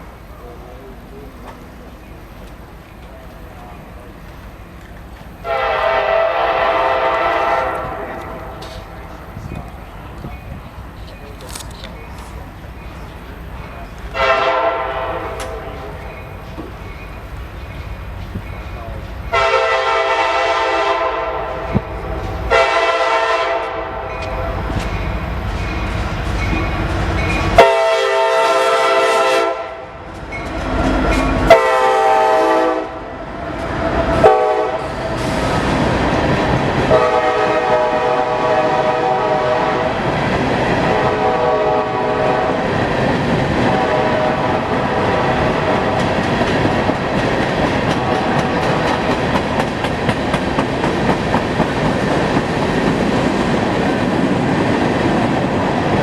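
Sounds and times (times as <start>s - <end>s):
train wheels rumbling on rails: 0.0s - 56.0s
locomotive horn blasts: 5.4s - 8.6s, 14.1s - 15.9s, 19.3s - 21.8s, 22.5s - 24.2s, 27.6s - 30.0s, 31.5s - 33.1s, 34.2s - 35.4s, 36.9s - 40.0s, 40.9s - 42.7s, 43.7s - 46.1s.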